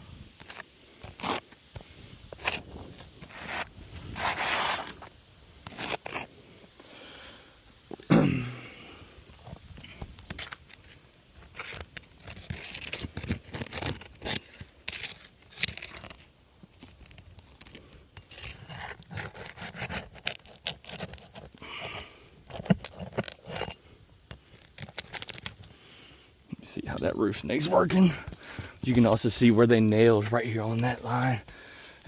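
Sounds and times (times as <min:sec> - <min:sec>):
metal tool scraping under shingles: 0:00.4 - 0:06.4, 0:09.3 - 0:16.3, 0:16.9 - 0:31.8.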